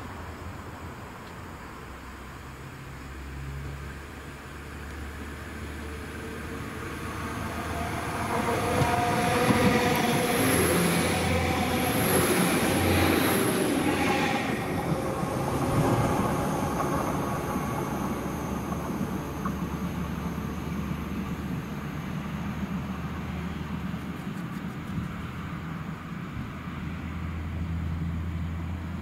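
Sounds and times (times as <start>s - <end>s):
diesel train passing at speed: 0.0s - 29.0s
thin high whine: 5.8s - 24.8s.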